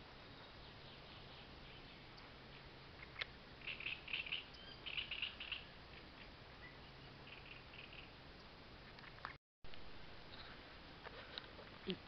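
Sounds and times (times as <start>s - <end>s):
small bird chirping: 0.2s - 8.5s.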